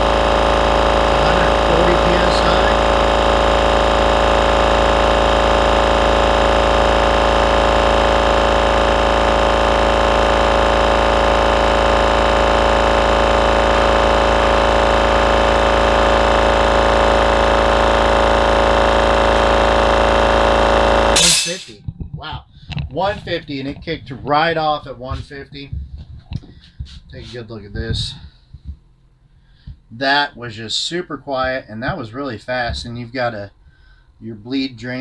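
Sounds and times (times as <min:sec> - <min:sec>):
air compressor running: 0:00.0 - 0:21.7.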